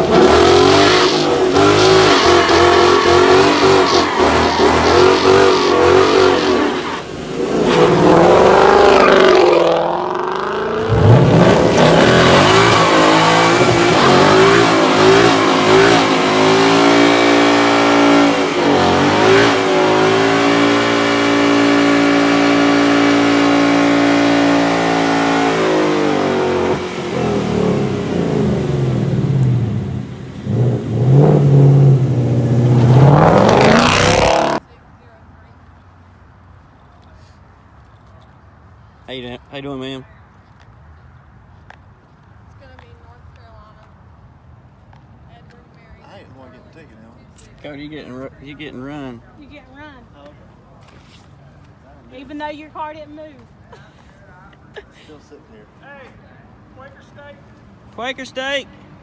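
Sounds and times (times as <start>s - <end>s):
car engine revving hard: 0.0s - 34.6s.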